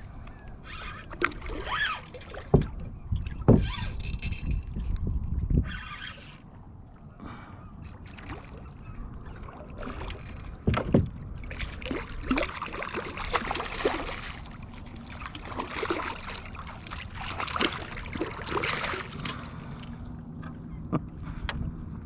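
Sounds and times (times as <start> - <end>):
water splashing against kayak: 0.7 - 3.9, 8.0 - 20.1.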